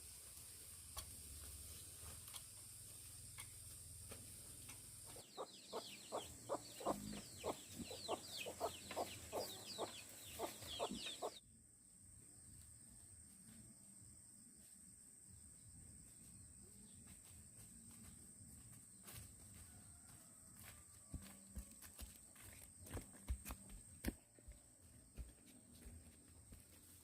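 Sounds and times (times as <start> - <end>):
chicken clucking: 5.1 - 11.4.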